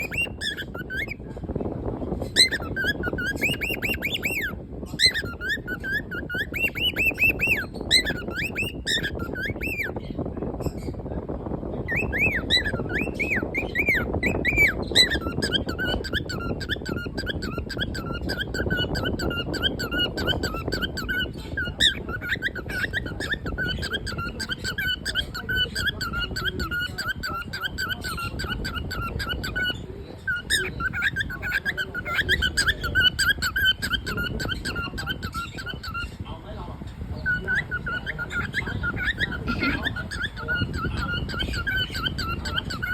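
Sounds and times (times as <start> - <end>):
cockatiel chirping and whistling: 0.0 - 1.2, 2.2 - 10.1, 11.8 - 36.2, 37.2 - 42.9
low background noise: 0.0 - 42.9.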